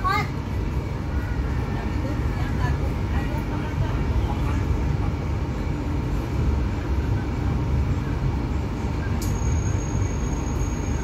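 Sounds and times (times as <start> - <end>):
train car rumbling on rails: 0.0 - 11.0
faint high whine: 6.7 - 11.0.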